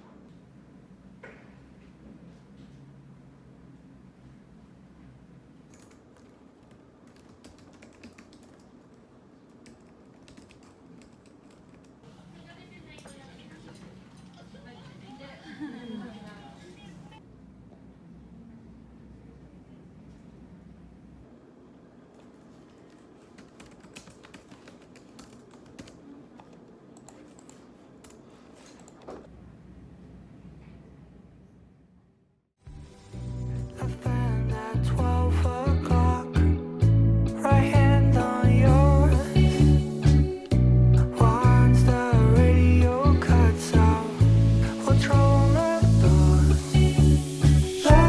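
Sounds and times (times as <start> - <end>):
room hum: 0.0 - 48.0
keyboard typing clicks: 5.7 - 12.0, 22.1 - 29.2.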